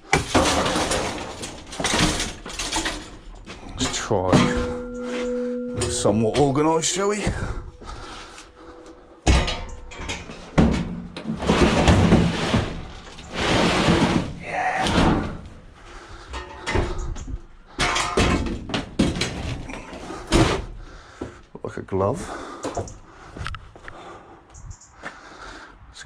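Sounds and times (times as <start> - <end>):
scrap items banging: 0.0 - 21.2
scrap items scraping: 0.2 - 17.1.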